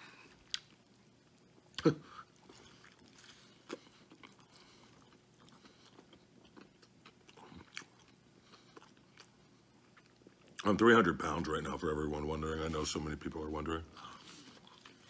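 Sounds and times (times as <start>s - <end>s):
chewing with wet mouth clicks: 0.4s - 10.6s.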